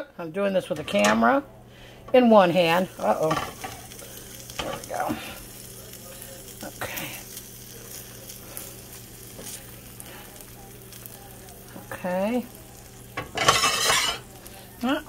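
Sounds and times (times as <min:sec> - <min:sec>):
food sizzling in a skillet: 0:02.2 - 0:15.0
spatula tapping and scraping: 0:13.2 - 0:14.2.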